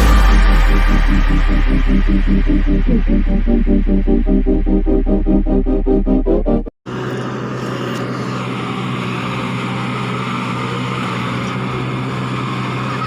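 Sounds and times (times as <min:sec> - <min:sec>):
electronic music: 0:00.0 - 0:06.7
engine running steadily: 0:06.9 - 0:13.0.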